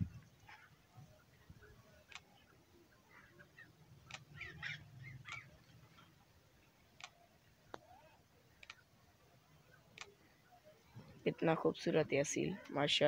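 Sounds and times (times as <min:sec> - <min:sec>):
faint bird chirps: 0:00.1 - 0:06.1
sharp ticks: 0:04.1 - 0:04.3.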